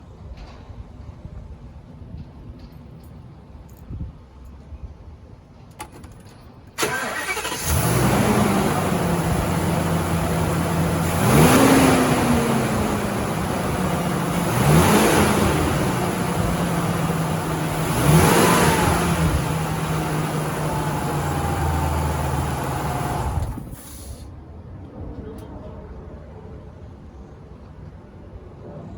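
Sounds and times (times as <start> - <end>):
truck engine idling and revving: 6.8 - 24.2
truck engine starter cranking: 6.8 - 24.2.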